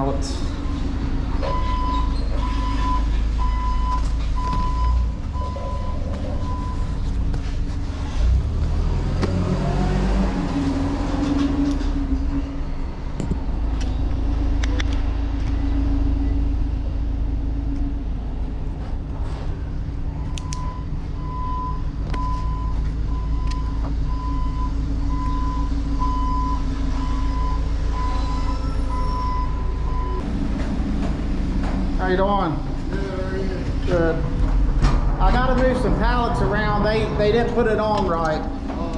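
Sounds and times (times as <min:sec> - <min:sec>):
diesel engine rumbling: 0:00.0 - 0:38.9
back-up alarm beeping: 0:00.6 - 0:07.1, 0:20.1 - 0:30.3.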